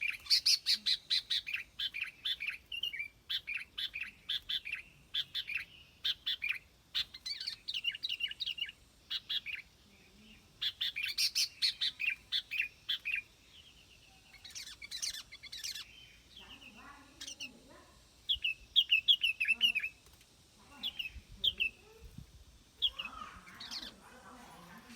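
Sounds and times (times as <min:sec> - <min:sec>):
bulbul chirping: 0:14.3 - 0:17.6.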